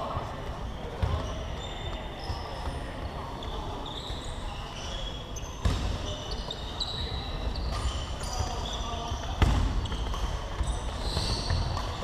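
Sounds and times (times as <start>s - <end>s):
sneakers squeaking on court: 0.6s - 12.0s
basketball bouncing on gym floor: 0.9s - 1.5s, 5.6s - 6.1s, 9.1s - 12.0s.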